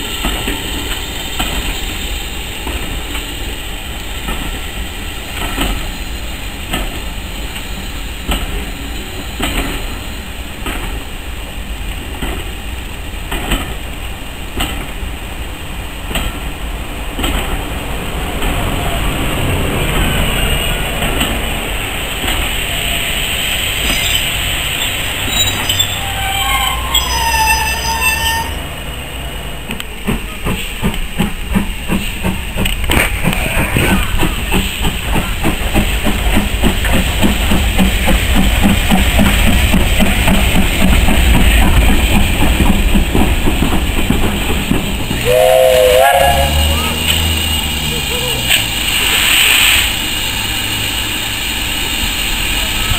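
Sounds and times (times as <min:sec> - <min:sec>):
train wheels squealing: 0:00.0 - 0:11.0, 0:20.0 - 0:21.3, 0:22.4 - 0:29.0
wheels clicking over rail joints: 0:13.2 - 0:15.1, 0:20.8 - 0:22.8, 0:29.6 - 0:52.9.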